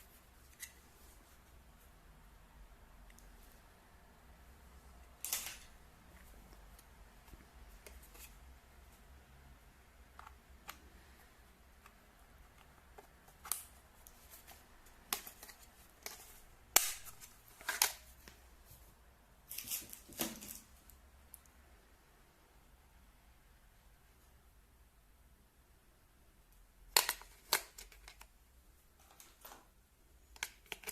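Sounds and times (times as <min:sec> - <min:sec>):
packaging clicks: 0:30.4 - 0:30.9.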